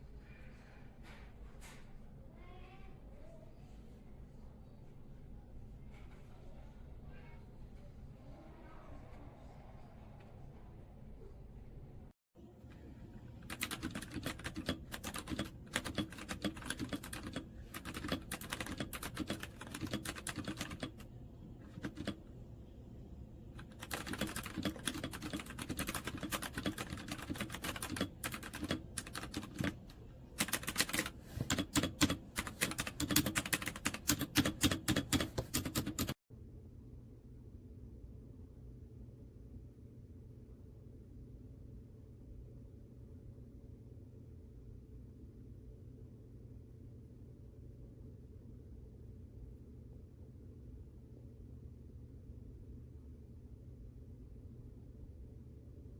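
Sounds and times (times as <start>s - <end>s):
mechanical keyboard typing: 13.4s - 36.2s.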